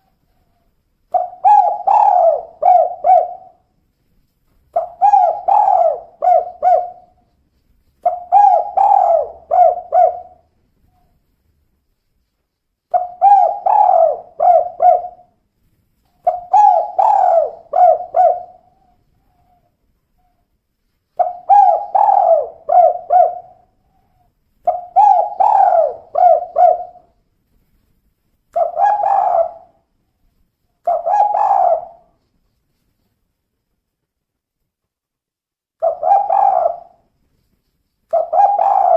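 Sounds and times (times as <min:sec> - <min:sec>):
dove cooing: 0:00.0 - 0:03.7, 0:04.7 - 0:07.4, 0:08.0 - 0:11.2, 0:12.9 - 0:15.4, 0:16.2 - 0:20.5, 0:21.2 - 0:27.2, 0:28.6 - 0:29.9, 0:30.8 - 0:32.2, 0:35.8 - 0:37.0, 0:38.1 - 0:38.9.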